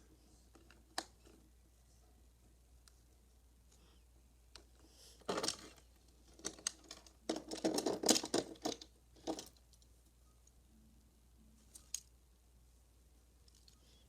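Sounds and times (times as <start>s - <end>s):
toy cars clicking and rattling: 5.2s - 9.8s.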